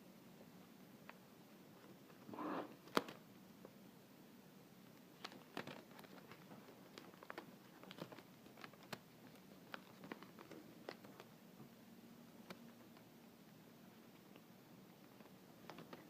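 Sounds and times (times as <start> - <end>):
paper and tape handling: 5.2 - 11.3.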